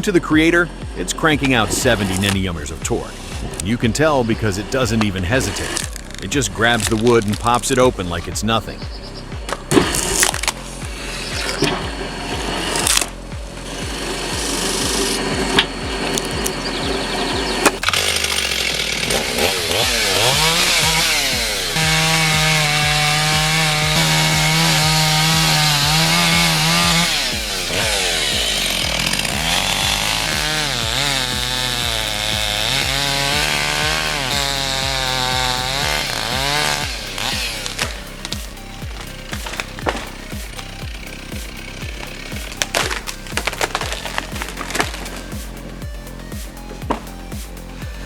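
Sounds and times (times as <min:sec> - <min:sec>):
chainsaw cutting wood: 0:00.0 - 0:48.0
wood knocking and cracking: 0:17.6 - 0:40.6, 0:41.4 - 0:45.6.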